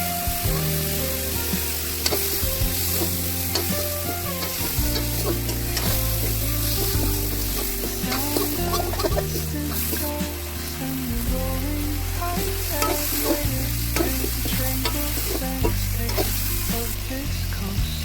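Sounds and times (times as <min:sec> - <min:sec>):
curry sizzling in a pan: 0:00.0 - 0:18.0
utensil scraping a pan: 0:01.5 - 0:10.4.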